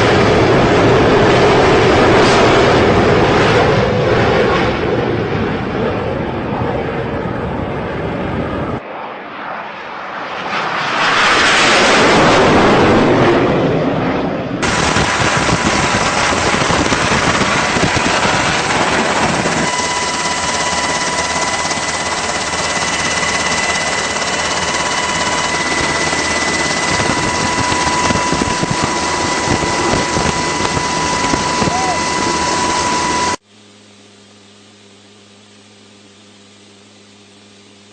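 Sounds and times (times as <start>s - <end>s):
jet engine noise: 0.0s - 37.9s
thin steady whine: 14.6s - 37.9s.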